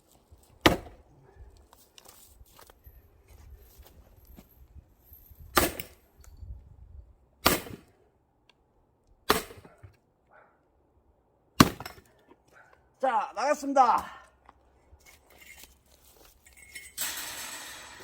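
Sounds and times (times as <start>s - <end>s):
axe splitting firewood: 0.4s - 1.1s, 5.5s - 6.0s, 7.4s - 7.9s, 9.2s - 10.0s, 11.6s - 12.3s.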